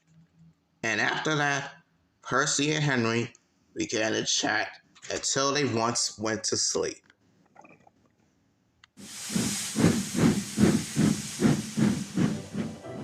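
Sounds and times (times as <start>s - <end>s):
steam hissing: 9.0s - 13.0s
steam locomotive chuffing: 9.0s - 13.0s.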